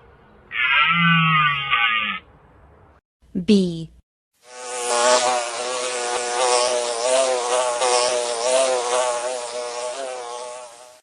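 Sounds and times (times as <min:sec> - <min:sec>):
honeybee buzzing: 0:04.4 - 0:11.0.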